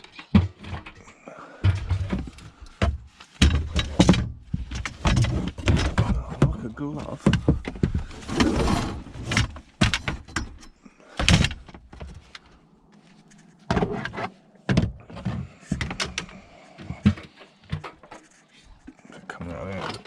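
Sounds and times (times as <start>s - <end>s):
clunks and knocks of scrap: 0.0s - 12.4s, 13.7s - 20.0s
scrap scraping slide: 8.0s - 9.5s.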